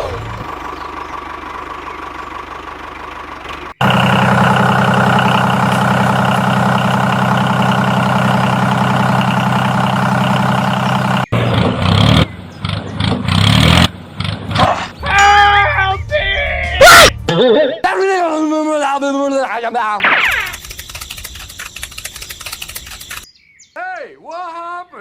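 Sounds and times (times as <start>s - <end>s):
engine humming: 0.0s - 17.3s, 20.0s - 23.3s
short choppy bursts: 20.0s - 23.3s.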